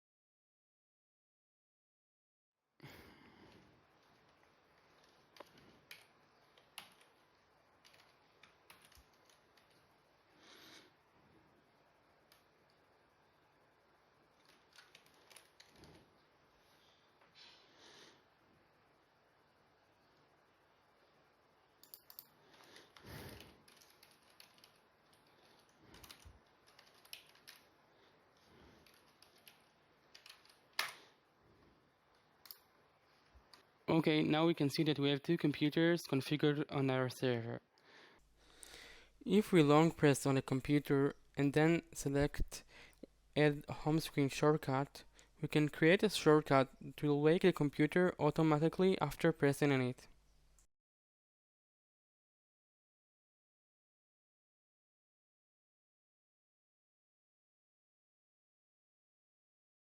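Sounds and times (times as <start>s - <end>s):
faint keyboard typing: 3.4s - 10.9s, 14.2s - 16.9s, 21.6s - 31.2s
computer keyboard typing clicks: 7.8s - 9.8s, 21.8s - 22.3s, 23.3s - 27.6s.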